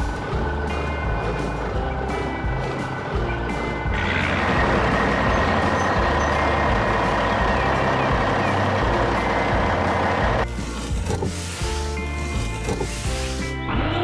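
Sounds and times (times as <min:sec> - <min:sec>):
heavy machinery running: 0:00.0 - 0:13.9.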